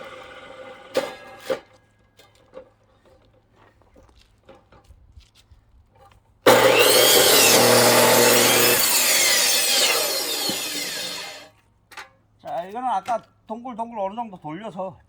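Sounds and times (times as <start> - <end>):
electric saw cutting log: 6.5 - 11.5.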